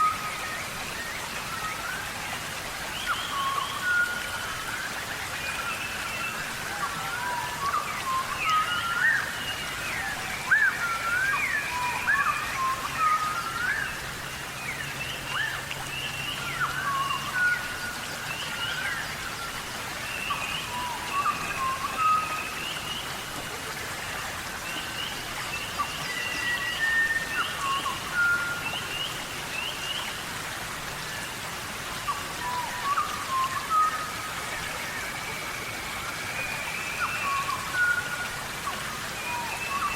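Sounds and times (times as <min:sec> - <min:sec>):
steady background hiss: 0:00.0 - 0:39.9
forest birds calling: 0:02.9 - 0:23.9.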